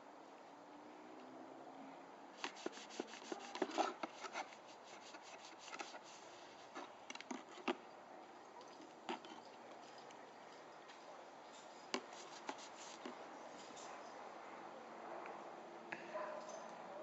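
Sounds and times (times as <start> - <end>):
scrubbing on button: 2.4 - 6.2.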